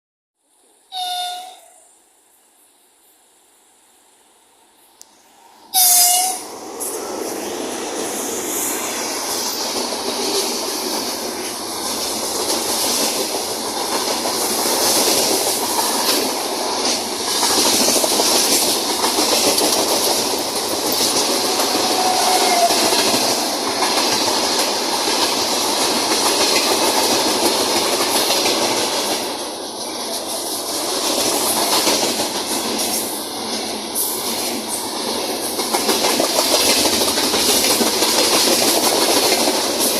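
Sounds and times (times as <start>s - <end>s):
freight train rolling past: 5.1s - 39.9s
train squeal: 5.3s - 7.2s, 21.0s - 23.2s.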